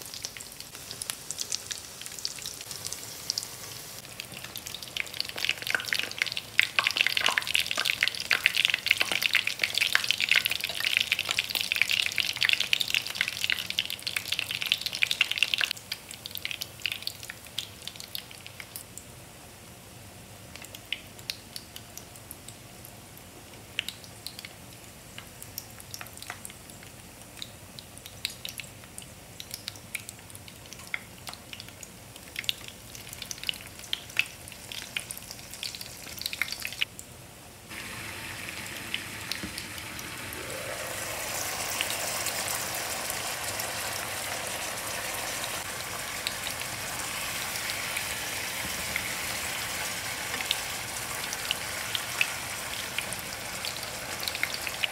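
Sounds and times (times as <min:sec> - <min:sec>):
food sizzling and bubbling in a pan: 0:00.0 - 0:37.0, 0:37.7 - 0:54.9.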